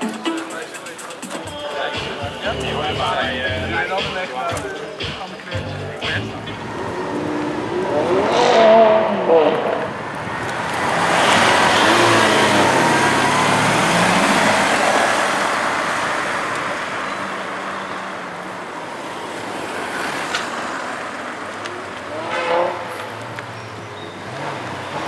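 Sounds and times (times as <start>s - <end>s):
car engine accelerating: 5.6s - 25.0s.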